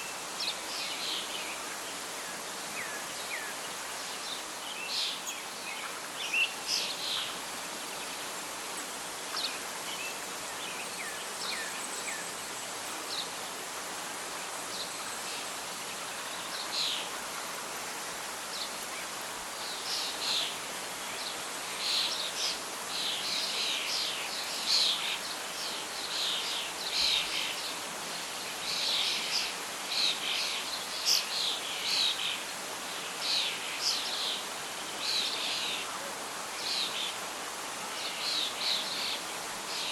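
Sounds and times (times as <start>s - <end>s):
birdsong: 0.0s - 13.6s
wind in leaves: 0.0s - 39.9s.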